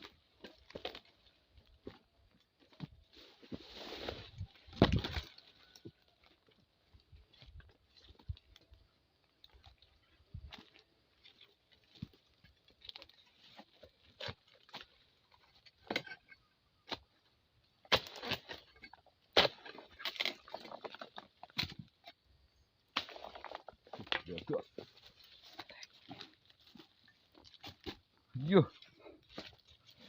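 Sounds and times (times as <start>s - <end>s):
rustling palm fronds: 2.7s - 8.6s
knocks and cracks: 4.7s - 5.4s.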